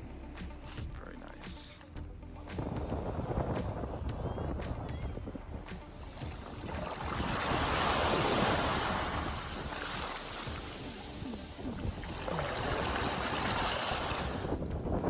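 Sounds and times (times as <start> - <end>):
sea waves breaking on beach: 5.7 - 14.6.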